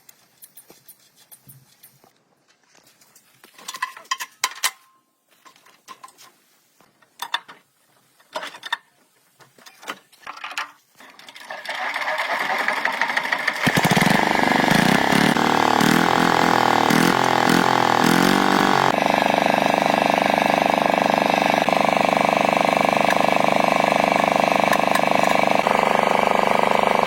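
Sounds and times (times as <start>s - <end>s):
old tractor engine running: 11.2s - 27.0s.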